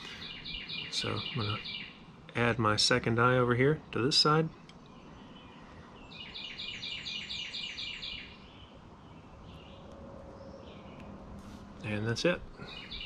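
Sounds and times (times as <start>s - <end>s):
faint outdoor background noise: 0.0s - 13.0s
songbird singing high notes: 0.1s - 2.0s, 5.4s - 11.1s.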